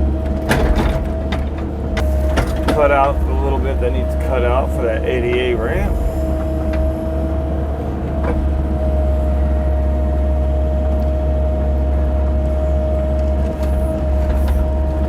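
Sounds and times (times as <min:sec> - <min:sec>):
excavator diesel engine droning: 0:00.0 - 0:15.0.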